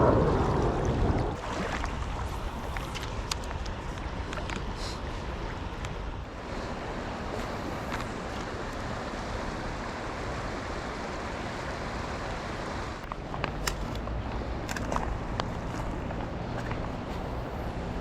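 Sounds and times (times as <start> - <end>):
wind noise on microphone: 0.0 - 6.3
creek water rushing: 0.0 - 18.0.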